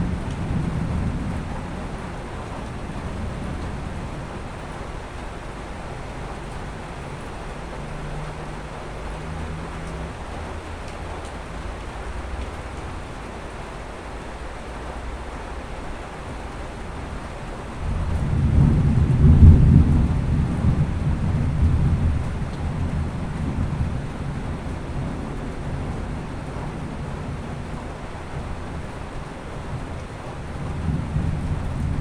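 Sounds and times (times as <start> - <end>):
rain hissing: 0.0 - 32.0
thunder rumbling: 0.0 - 32.0.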